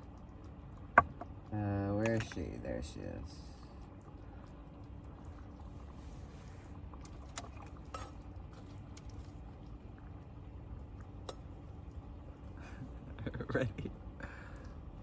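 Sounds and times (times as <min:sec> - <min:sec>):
faint hum: 0:00.0 - 0:15.0
rice cooker bubbling: 0:00.0 - 0:15.0.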